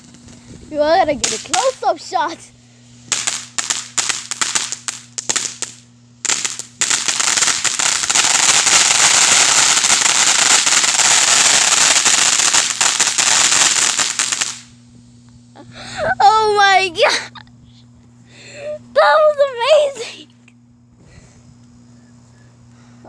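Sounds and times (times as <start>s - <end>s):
firecrackers popping: 0.0s - 14.8s.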